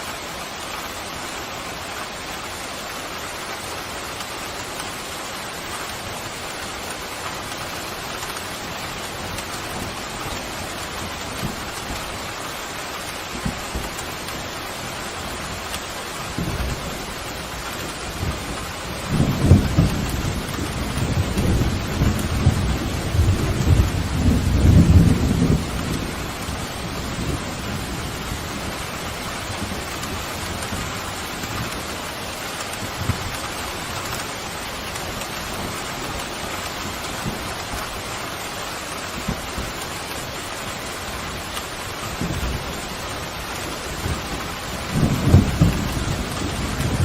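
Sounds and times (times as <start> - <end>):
heavy rain: 0.0 - 47.0
thunder rumbling: 16.3 - 38.0, 41.1 - 47.0.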